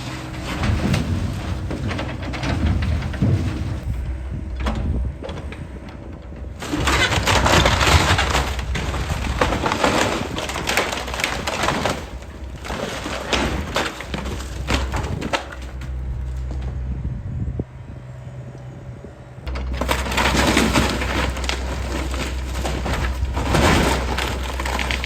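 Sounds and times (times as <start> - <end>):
excavator engine running: 0.0 - 25.0
material cracking and crunching: 6.6 - 16.6, 19.5 - 25.0.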